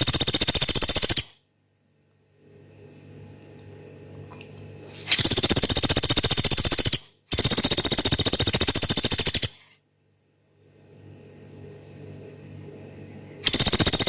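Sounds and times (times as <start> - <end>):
woodpecker harsh rattles: 0.0 - 1.3, 5.1 - 9.6, 13.4 - 14.0.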